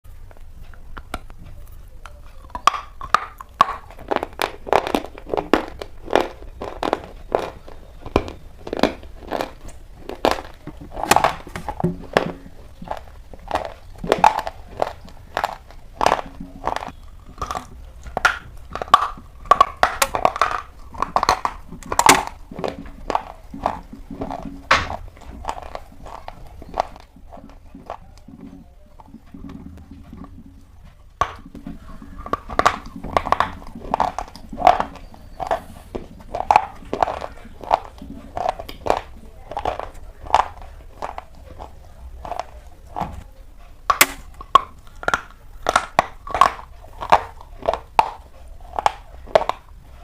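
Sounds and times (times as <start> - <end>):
brittle crunches of chewing: 0.1 - 50.0.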